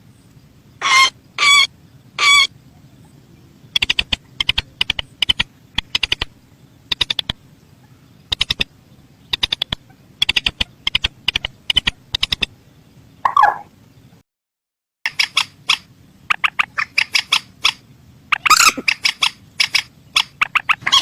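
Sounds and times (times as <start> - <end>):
bird downward-sliding squawk: 0.8 - 2.5, 13.2 - 13.7, 15.2 - 21.0
bird sharp clicking calls: 3.7 - 7.4, 8.3 - 8.7, 9.3 - 12.5, 13.2 - 13.7, 15.1 - 21.0.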